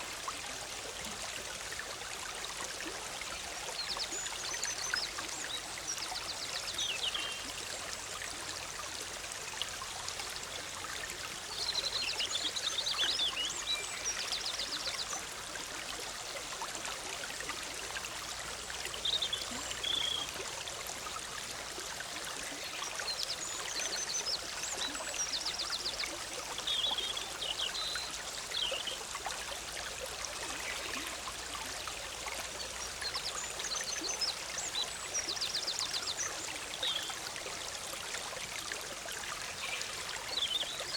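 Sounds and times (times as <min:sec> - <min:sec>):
stream bubbling over rocks: 0:00.0 - 0:40.9
songbirds singing: 0:03.8 - 0:07.7, 0:11.4 - 0:15.3, 0:18.8 - 0:20.3, 0:22.4 - 0:29.1, 0:32.5 - 0:37.2, 0:39.4 - 0:40.9.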